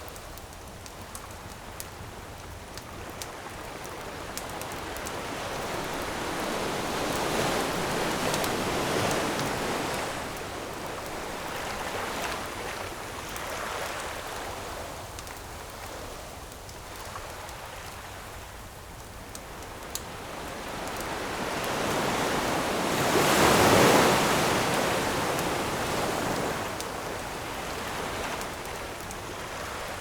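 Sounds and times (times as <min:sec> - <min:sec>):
campfire crackling: 0:00.0 - 0:30.0
ocean wave breaking on shore: 0:04.2 - 0:13.0, 0:20.5 - 0:28.6.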